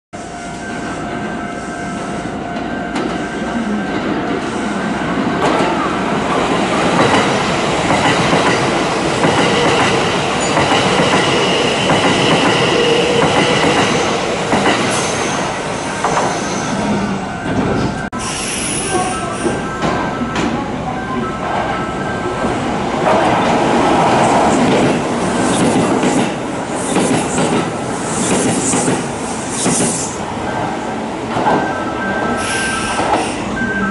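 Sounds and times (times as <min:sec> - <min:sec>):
train rumble and clatter: 0:00.2 - 0:33.9
high wheel squeal: 0:31.5 - 0:33.9.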